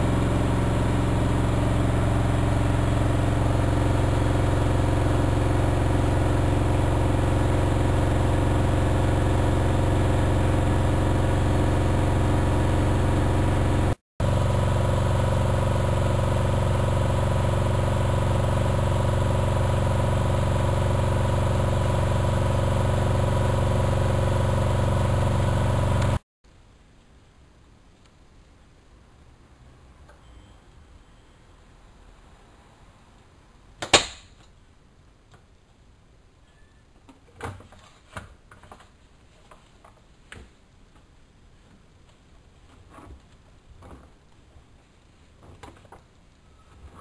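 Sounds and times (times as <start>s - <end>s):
washing machine spinning: 0.0s - 26.2s.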